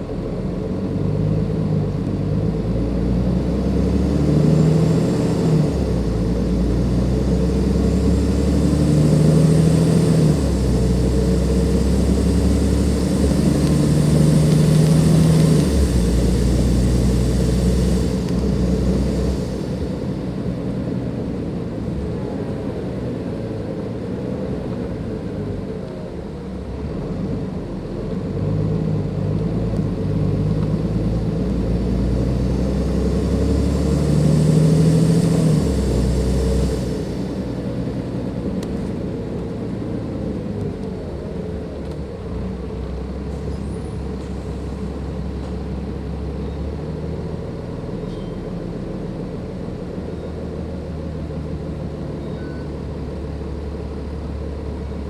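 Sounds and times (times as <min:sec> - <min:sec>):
bus diesel engine under load: 0:00.0 - 0:55.0
turbocharger hiss: 0:04.0 - 0:21.0, 0:32.0 - 0:38.2.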